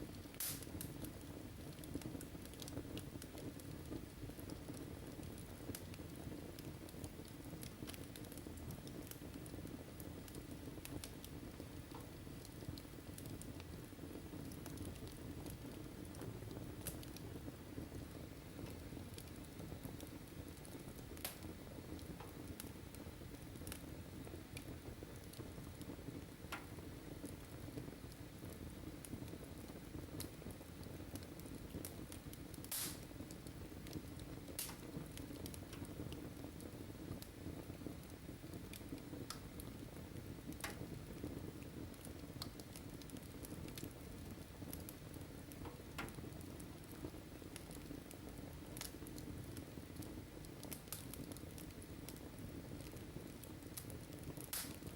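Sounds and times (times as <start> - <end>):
faint steady hiss: 0.0 - 54.9
wood fire crackling and popping: 0.0 - 54.9.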